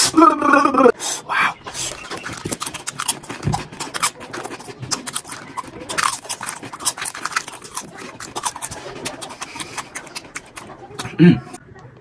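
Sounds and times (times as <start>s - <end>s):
birds chirping and clicking: 1.4s - 8.8s.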